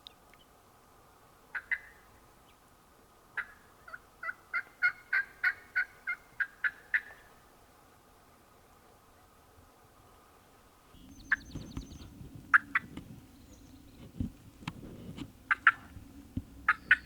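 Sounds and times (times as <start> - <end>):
wild turkey yelps: 1.5 - 2.0, 3.4 - 7.3, 15.5 - 15.9, 16.7 - 17.0.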